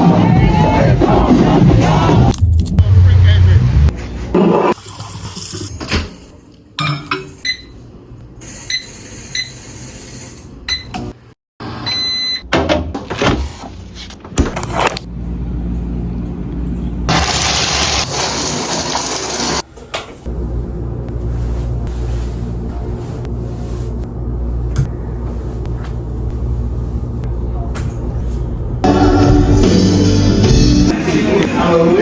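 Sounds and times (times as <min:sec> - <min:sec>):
short electronic beeps: 0:08.6 - 0:09.6.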